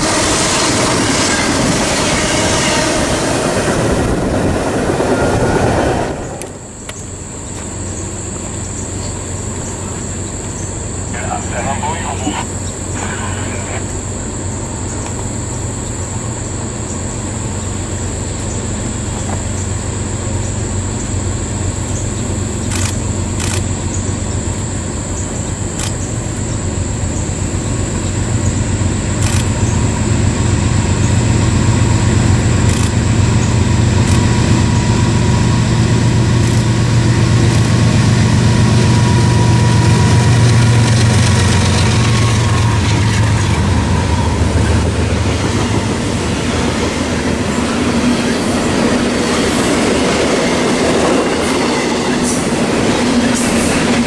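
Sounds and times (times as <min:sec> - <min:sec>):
diesel locomotive engine drone: 0:00.0 - 0:54.0
sharp clicks: 0:36.4 - 0:36.7.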